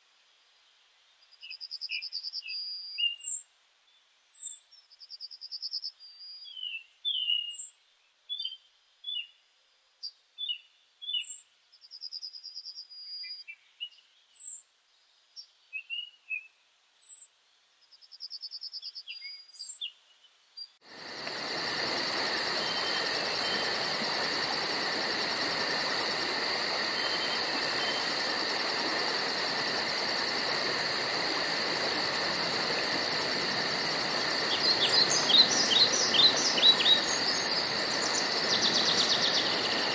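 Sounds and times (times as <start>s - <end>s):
insects buzzing: 20.8s - 39.9s.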